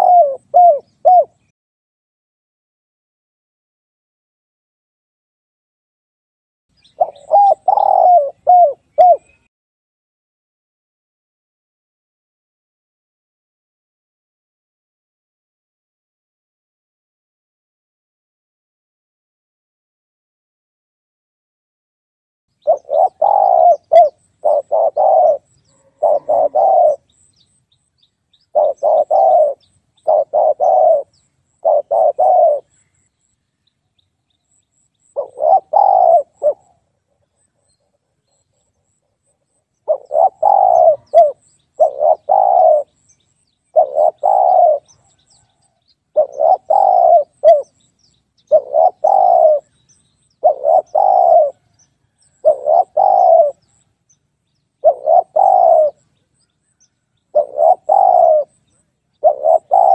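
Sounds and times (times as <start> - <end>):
dove cooing: 0.0 - 1.5, 6.8 - 9.5, 22.6 - 27.5, 28.4 - 32.8, 35.1 - 38.0, 39.8 - 43.0, 43.7 - 47.8, 48.4 - 49.8, 50.4 - 53.8, 54.8 - 56.1, 57.2 - 58.6, 59.2 - 59.9.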